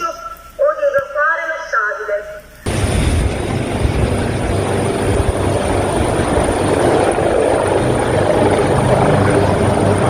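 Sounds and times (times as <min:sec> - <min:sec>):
helicopter rotor and engine: 0:02.6 - 0:10.0.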